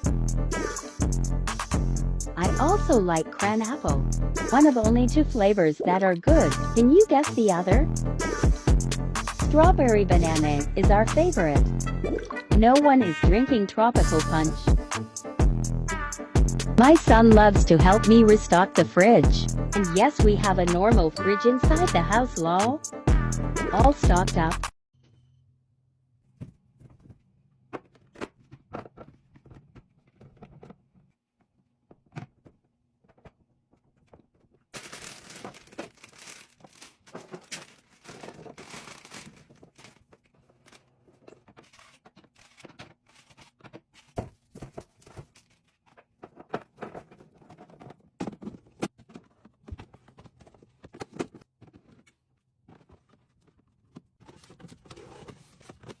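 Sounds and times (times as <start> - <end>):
items clicking and knocking: 26.4 - 56.0
plastic packaging crinkling: 33.8 - 48.1.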